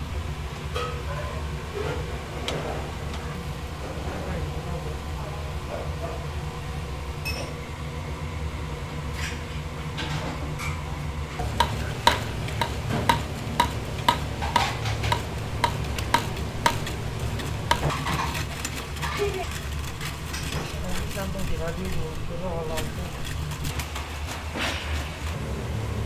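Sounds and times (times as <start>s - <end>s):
kitchen equipment hum: 11.3s - 26.0s
metal utensils clinking dishes: 11.4s - 25.4s.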